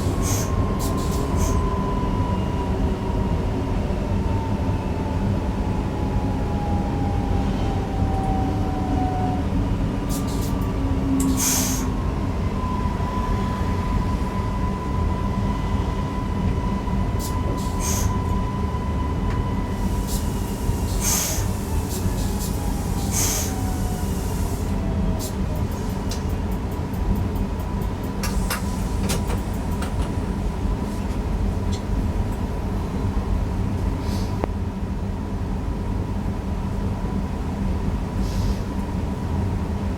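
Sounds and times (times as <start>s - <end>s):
electric train running: 19.3s - 30.5s.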